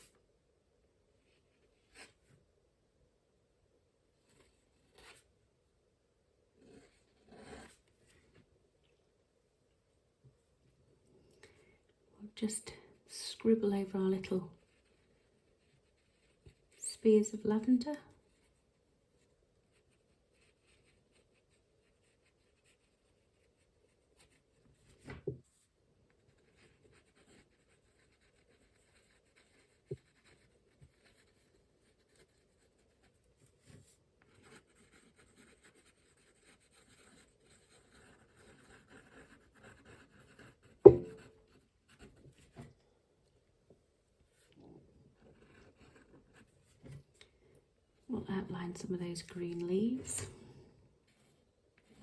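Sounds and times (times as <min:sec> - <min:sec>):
ink pen scratching on paper: 0:26.3 - 0:33.1, 0:34.3 - 0:42.2
soft knocks: 0:40.8 - 0:41.2.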